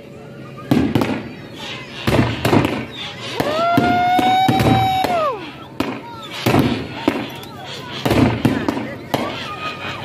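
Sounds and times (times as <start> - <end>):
fireworks bangs and pops: 0.7 - 1.4, 2.0 - 9.4.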